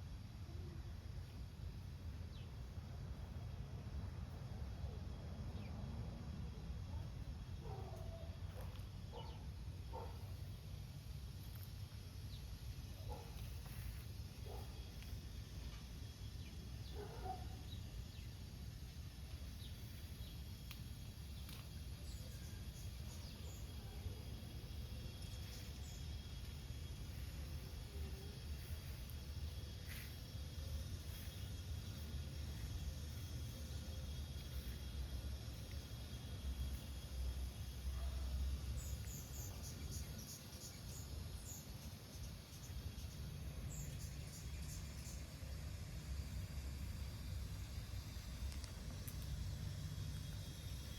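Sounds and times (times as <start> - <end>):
steady low rumble: 9.6 - 40.3, 42.6 - 50.9.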